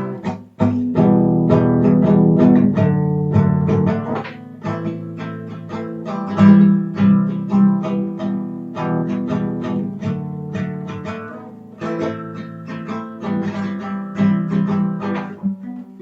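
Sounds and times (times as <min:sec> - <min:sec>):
acoustic guitar picking: 0:00.0 - 0:16.0.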